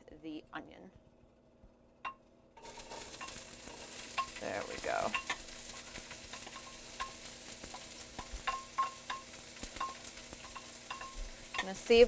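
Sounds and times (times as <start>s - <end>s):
utensil clinking against pan: 2.1s - 12.0s
onion sizzling in frying pan: 2.6s - 12.0s.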